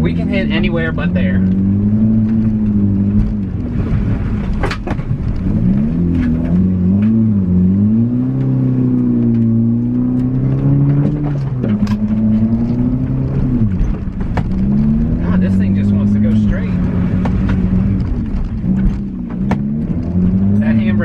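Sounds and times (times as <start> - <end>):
car engine revving: 0.0 - 21.0
sharp knocks: 17.1 - 20.0.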